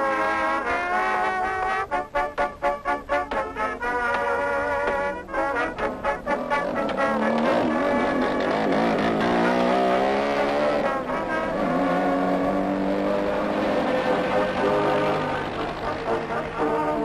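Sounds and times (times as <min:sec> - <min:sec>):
motorcycle rickshaw engine: 0:04.1 - 0:17.0.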